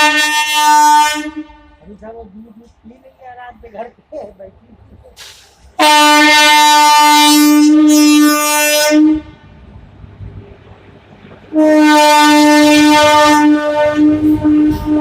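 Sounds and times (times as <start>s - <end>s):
locomotive air horn blasts: 0.0s - 1.9s, 5.2s - 9.5s, 11.5s - 15.0s.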